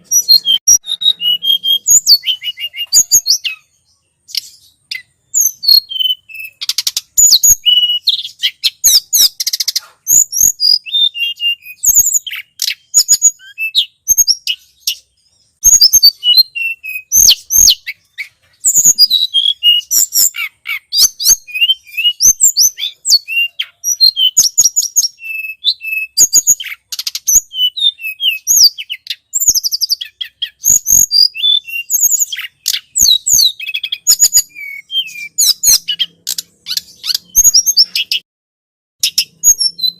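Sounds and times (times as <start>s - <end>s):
songbird chirping and trilling: 0.0s - 38.2s, 39.0s - 39.9s.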